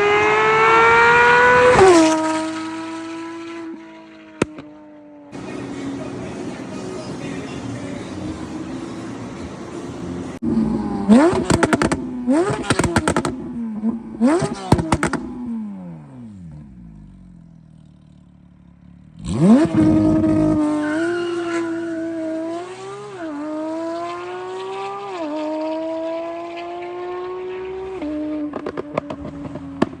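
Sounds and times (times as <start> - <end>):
sports car engine revving: 0.0 - 4.8, 5.4 - 30.0
exhaust crackling pops: 4.4 - 4.7, 11.1 - 15.4, 28.0 - 30.0.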